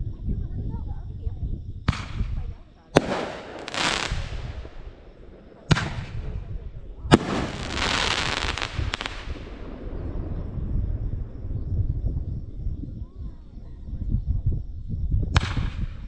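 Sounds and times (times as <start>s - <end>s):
steady low rumble: 0.0s - 15.8s
crackling hiss with snaps: 1.9s - 11.1s, 15.3s - 16.0s
fireworks bangs: 1.9s - 12.4s.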